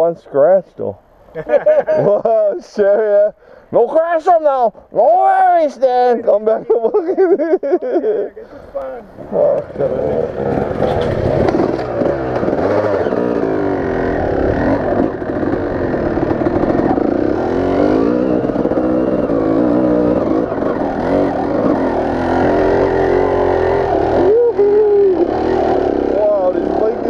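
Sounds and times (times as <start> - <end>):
dirt bike engine revving: 9.1 - 27.0.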